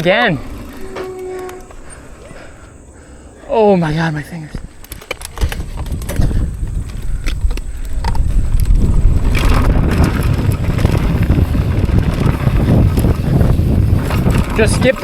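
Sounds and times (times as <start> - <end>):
wind buffeting microphone: 3.9 - 15.0
bike rattling clicks: 4.6 - 15.0.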